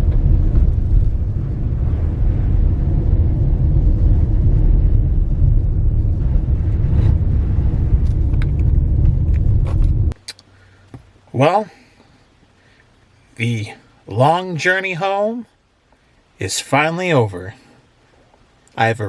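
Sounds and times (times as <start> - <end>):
car road rumble: 0.0 - 10.2.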